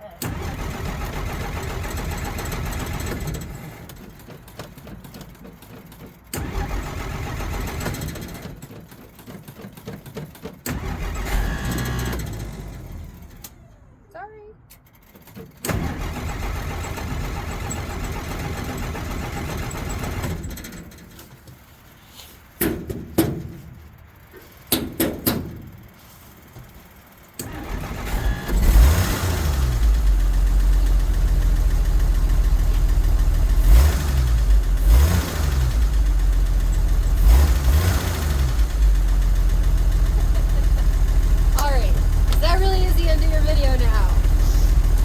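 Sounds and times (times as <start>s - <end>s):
car engine revving: 27.4s - 45.0s.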